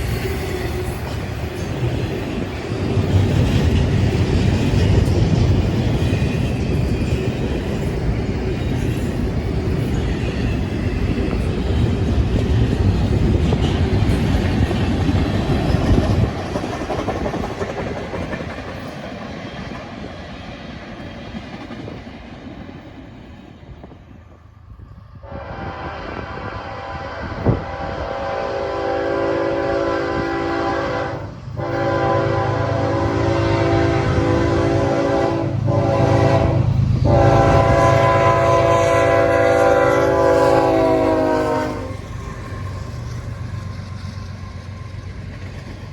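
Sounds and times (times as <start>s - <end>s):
train rumbling past: 0.0s - 45.9s
locomotive air horn chord: 25.2s - 42.0s.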